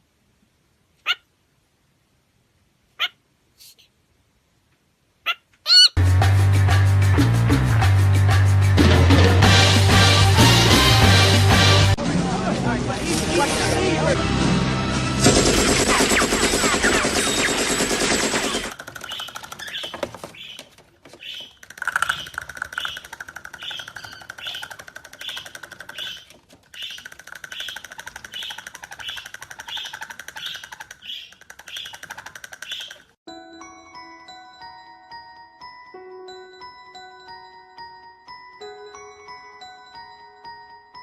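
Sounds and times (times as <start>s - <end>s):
loud harsh burst: 13.0s - 18.8s
bird rattling call: 15.8s - 33.2s.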